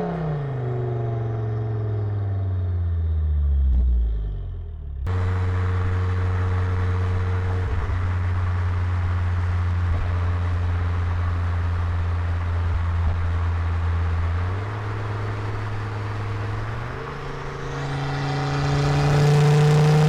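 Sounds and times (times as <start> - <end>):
steady exhaust drone: 5.1 - 20.0
falling engine note: 14.3 - 20.0.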